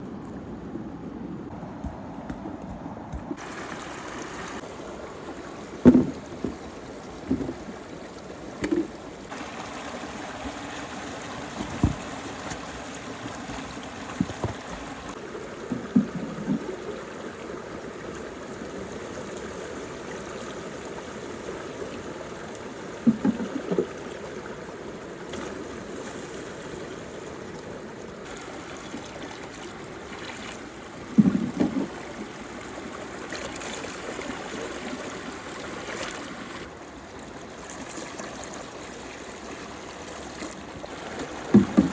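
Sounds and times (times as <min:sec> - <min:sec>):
water swirling and draining: 0:28.2 - 0:41.9
stones plopping into water: 0:41.5 - 0:41.9.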